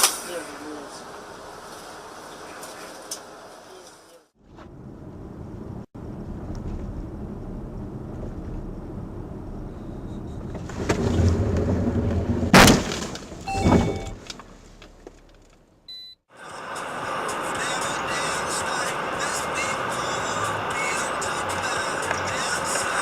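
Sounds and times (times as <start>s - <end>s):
car road noise: 0.0s - 23.0s
loud collision impact: 12.4s - 14.2s.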